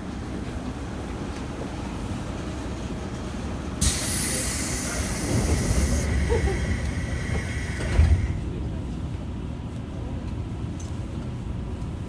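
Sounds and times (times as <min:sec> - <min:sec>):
train wheels rumbling: 0:00.1 - 0:12.0
loud air hiss: 0:03.8 - 0:08.5.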